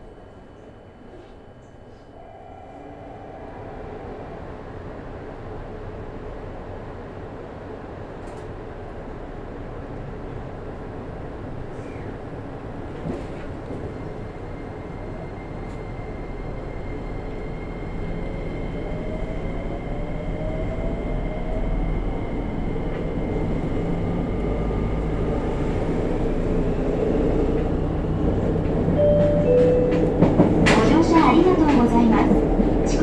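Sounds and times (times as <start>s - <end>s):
train low rumble: 0.0s - 33.0s
faint rising tones: 2.0s - 6.7s.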